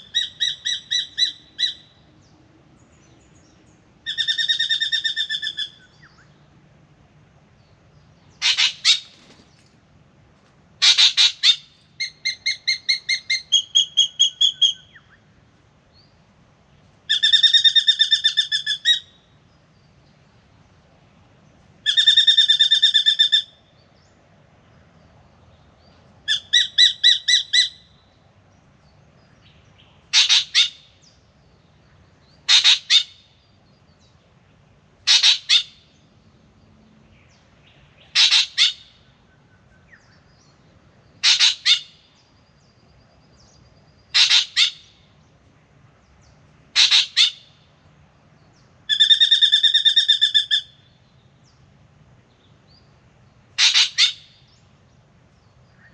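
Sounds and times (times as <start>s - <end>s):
bird calling: 0.0s - 6.5s, 8.2s - 9.7s, 10.8s - 16.1s, 17.1s - 19.4s, 21.8s - 24.1s, 26.2s - 28.2s, 29.2s - 34.1s, 35.0s - 36.2s, 37.2s - 45.3s, 46.2s - 51.6s, 52.4s - 55.9s.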